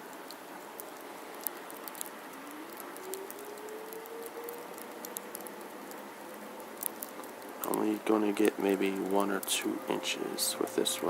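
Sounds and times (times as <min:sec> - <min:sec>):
faint distant hum: 0:00.0 - 0:11.0
snow pattering lightly: 0:00.0 - 0:11.0.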